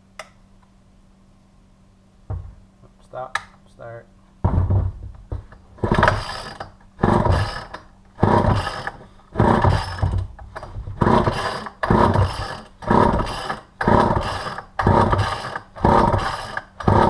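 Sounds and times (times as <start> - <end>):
chainsaw recoil starter pulled: 5.8 - 17.0
engine turning over without catching: 5.8 - 17.0.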